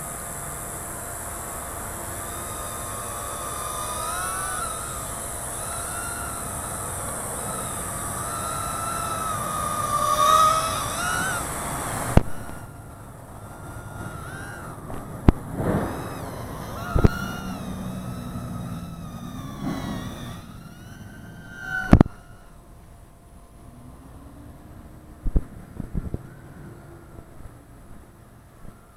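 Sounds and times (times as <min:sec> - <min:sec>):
high hiss: 0:00.0 - 0:22.9
drone motors whining: 0:00.0 - 0:28.9.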